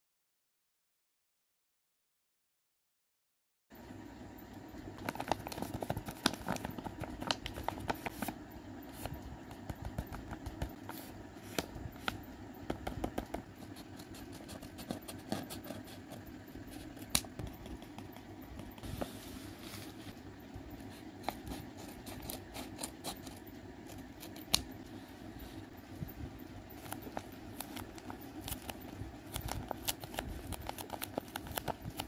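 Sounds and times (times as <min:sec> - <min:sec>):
steady low hum: 0:03.7 - 0:32.0
paper crackling: 0:05.0 - 0:12.2, 0:26.8 - 0:32.0.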